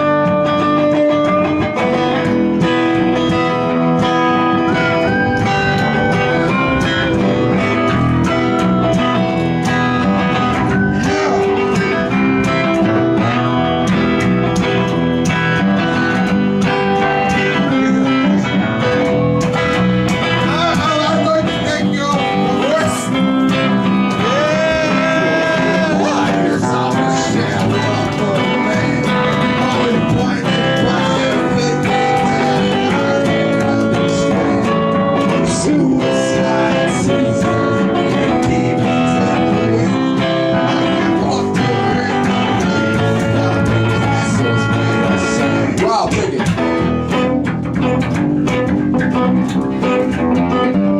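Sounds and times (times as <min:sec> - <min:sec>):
guitar strummed and picked: 0:00.0 - 0:50.9
person singing: 0:01.9 - 0:14.9, 0:16.6 - 0:19.1, 0:20.2 - 0:50.9.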